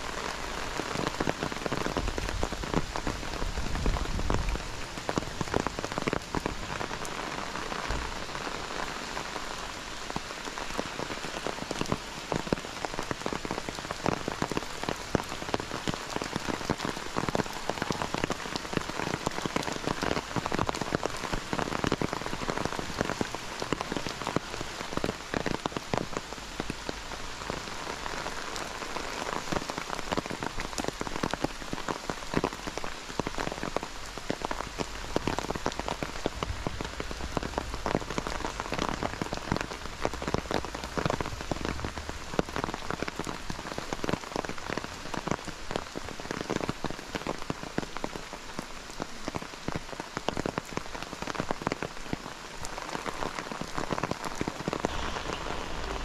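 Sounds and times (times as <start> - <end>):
raindrops hitting close by: 0.0 - 56.0
steady rain falling: 0.0 - 56.0.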